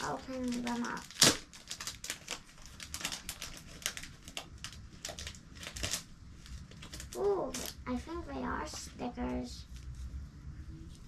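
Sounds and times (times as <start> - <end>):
packaging crinkling: 0.0 - 7.9.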